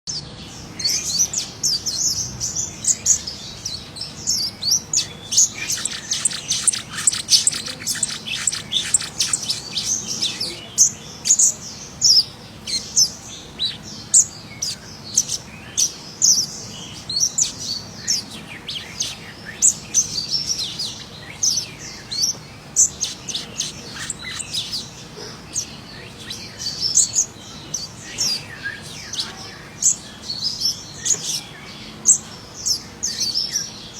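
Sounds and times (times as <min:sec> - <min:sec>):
bird chirping and whistling: 0:00.5 - 0:25.0.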